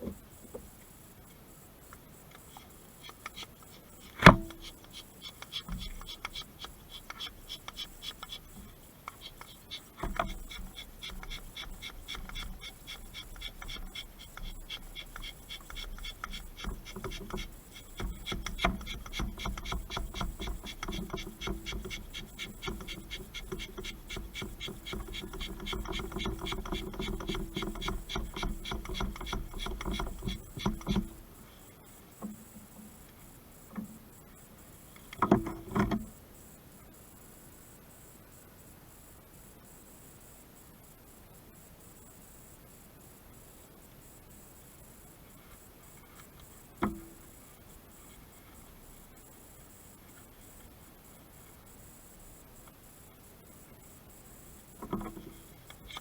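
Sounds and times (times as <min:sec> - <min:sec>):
hand pump rasping strokes: 0:03.0 - 0:31.3, 0:54.8 - 0:56.0
knocks: 0:04.2 - 0:04.7.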